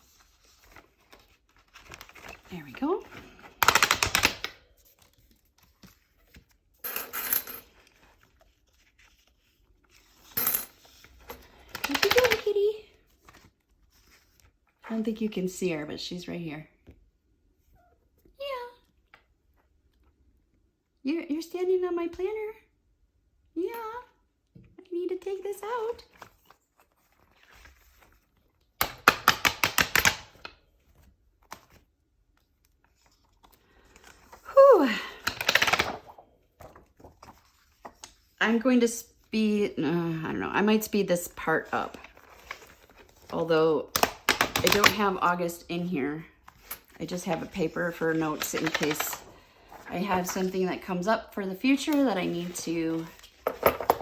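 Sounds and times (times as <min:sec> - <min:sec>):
planner pages and discs clicking: 0:00.3 - 0:06.6, 0:46.5 - 0:49.3.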